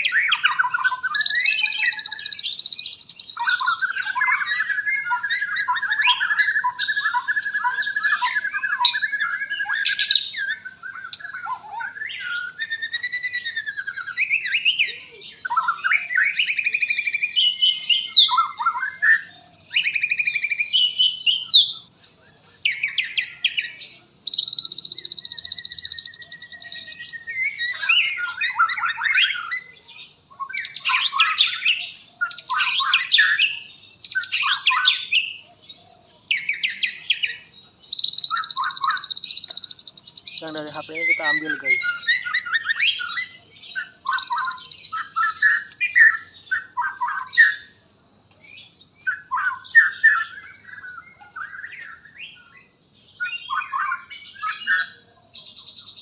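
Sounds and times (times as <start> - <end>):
bird singing whistled song: 0.0 - 56.0.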